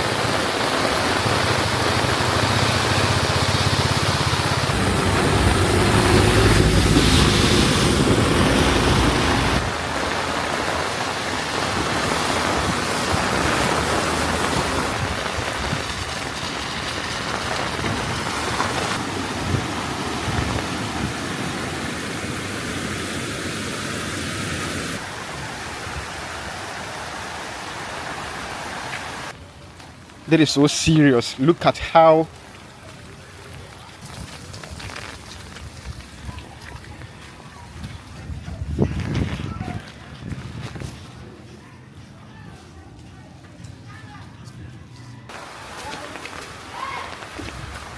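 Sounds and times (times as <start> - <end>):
heavy rain falling: 0.0 - 30.2, 31.3 - 37.9, 45.3 - 47.9
low engine hum: 4.2 - 9.7.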